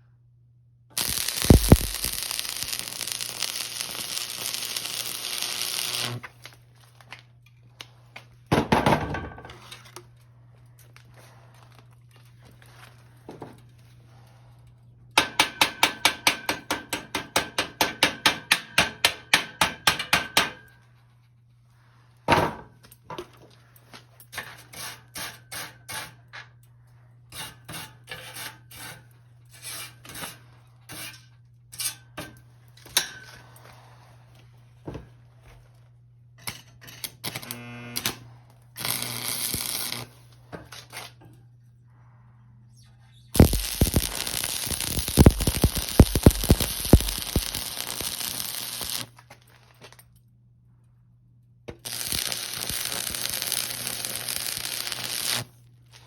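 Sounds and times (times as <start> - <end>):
steady low hum: 0.0 - 6.5, 41.3 - 49.0
loud hiss: 1.0 - 6.2, 43.4 - 49.1.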